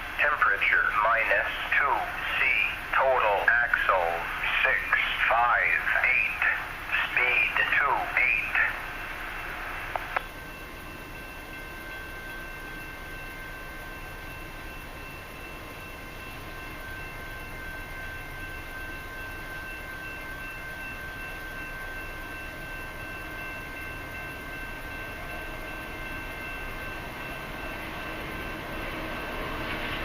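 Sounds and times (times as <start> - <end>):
freight train rumble: 0.0 - 30.0.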